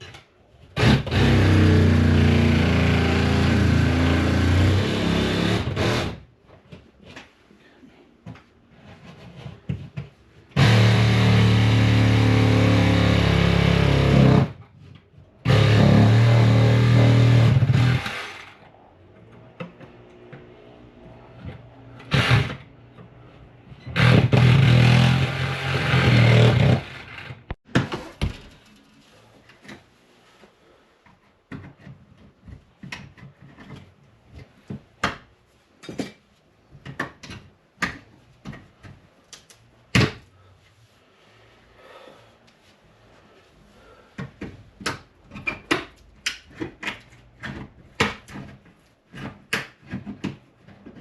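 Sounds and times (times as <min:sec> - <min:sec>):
power tool cutting drywall: 0:00.8 - 0:06.2, 0:10.6 - 0:14.6, 0:15.4 - 0:18.6, 0:22.0 - 0:22.7, 0:23.9 - 0:27.6.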